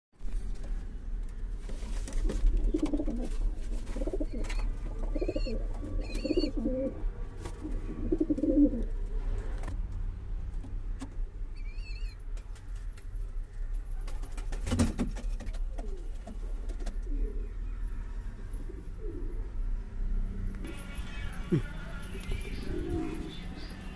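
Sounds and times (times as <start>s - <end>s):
pigeons cooing: 2.3s - 7.0s, 7.6s - 8.9s, 18.6s - 19.6s, 22.3s - 23.9s.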